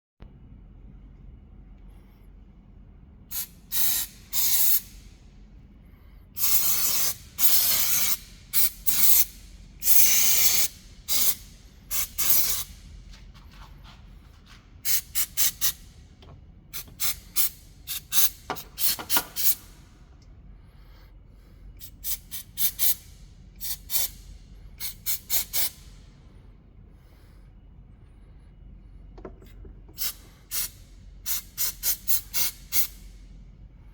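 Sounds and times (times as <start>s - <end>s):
aerosol can spraying: 3.3s - 5.0s, 6.4s - 12.8s, 14.8s - 15.9s, 16.8s - 19.8s, 30.0s - 33.1s.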